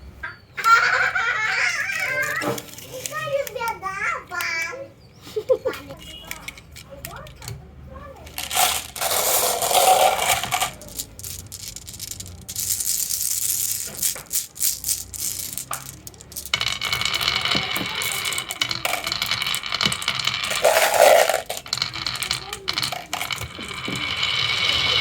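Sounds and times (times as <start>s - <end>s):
marbles rattling down wooden track: 8.2s - 25.0s.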